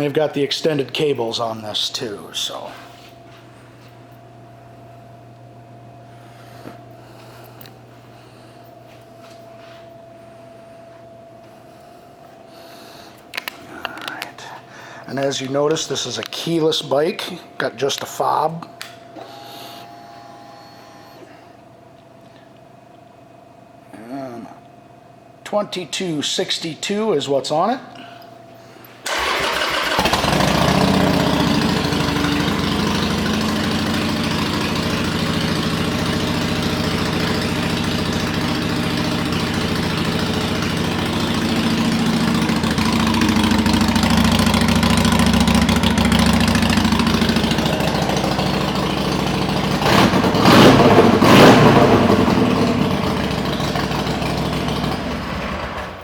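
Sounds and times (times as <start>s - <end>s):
motorcycle engine starting and idling: 29.0s - 56.0s
motorcycle throttle blips: 29.1s - 55.8s.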